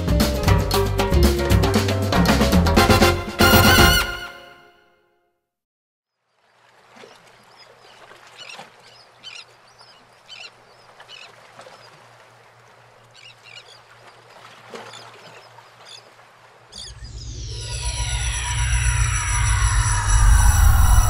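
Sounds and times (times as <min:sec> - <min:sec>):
birds calling: 0:06.9 - 0:17.6
low hum: 0:16.8 - 0:21.0.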